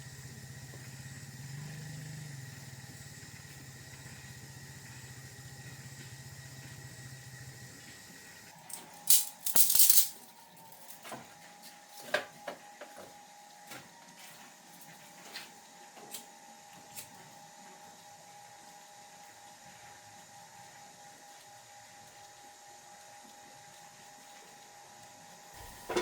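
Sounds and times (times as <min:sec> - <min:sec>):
small engine idling: 0:00.0 - 0:09.1, 0:25.6 - 0:26.0
loud rattling and scraping: 0:08.7 - 0:11.0.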